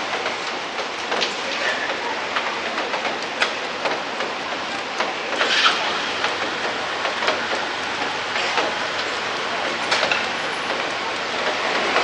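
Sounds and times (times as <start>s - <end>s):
sharp drips on nearby surfaces: 0.0s - 12.0s
steady rain falling: 0.0s - 12.0s.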